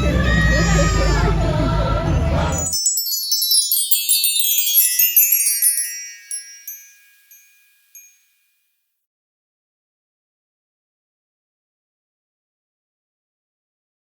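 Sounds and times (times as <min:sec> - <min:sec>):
tinkling chime notes: 0:00.0 - 0:08.6.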